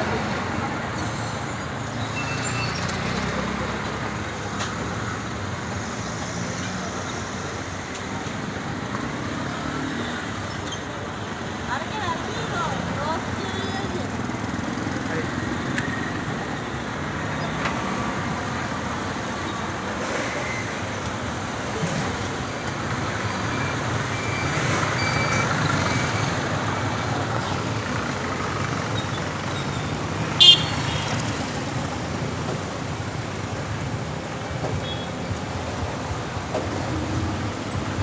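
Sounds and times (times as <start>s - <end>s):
road traffic noise: 0.0s - 38.0s
high horn toot: 30.4s - 31.2s.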